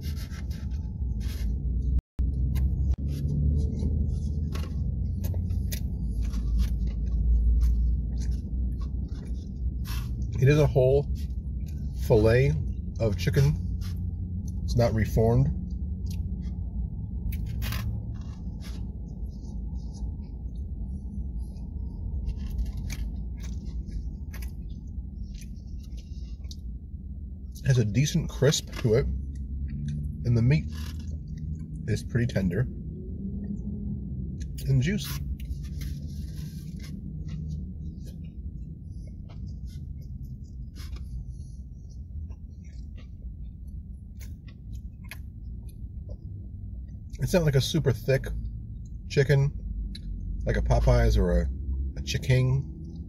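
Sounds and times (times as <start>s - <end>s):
low car cabin hum: 0.0s - 53.0s
steady low rumble: 0.0s - 53.0s
person chewing crunchy food: 2.4s - 10.3s, 21.6s - 26.7s, 35.3s - 46.1s.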